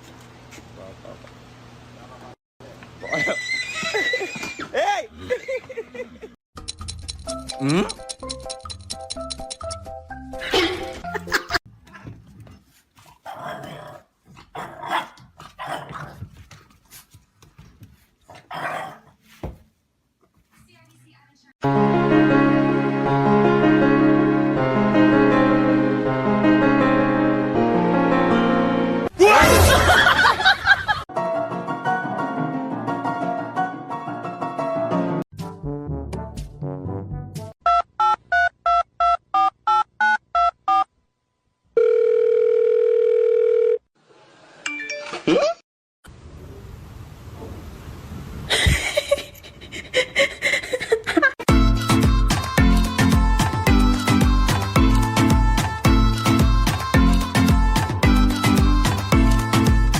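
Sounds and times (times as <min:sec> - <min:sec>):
dog barking or growling: 0:13.2 - 0:16.2, 0:18.4 - 0:19.2
steady telephone tone: 0:41.8 - 0:43.8.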